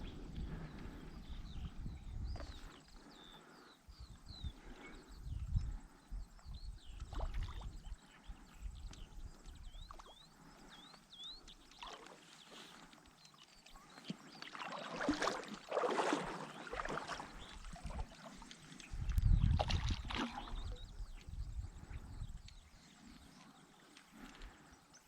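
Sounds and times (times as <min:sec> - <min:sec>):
river water splashing: 0:11.7 - 0:20.8.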